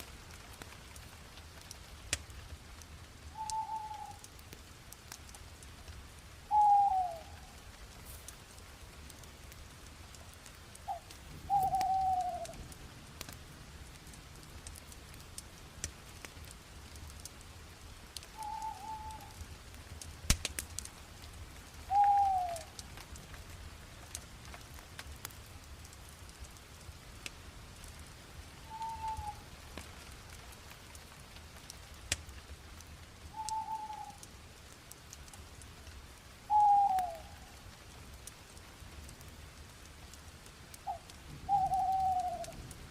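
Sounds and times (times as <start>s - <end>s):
wood fire crackling: 0.0s - 42.9s
bird calling: 3.4s - 4.3s, 6.5s - 7.6s, 10.9s - 12.6s, 18.3s - 19.4s, 21.9s - 22.8s, 28.6s - 29.5s, 33.4s - 34.2s, 36.5s - 37.5s, 40.8s - 42.6s.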